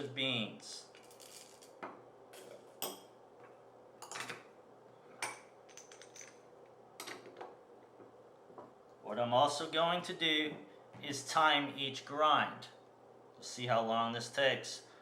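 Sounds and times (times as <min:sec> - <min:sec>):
coffee beans rattling into grinder: 0:00.9 - 0:01.8.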